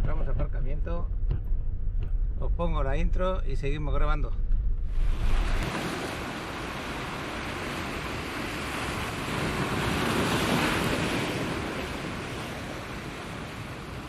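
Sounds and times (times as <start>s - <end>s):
sea surf washing onto beach: 5.0s - 14.0s.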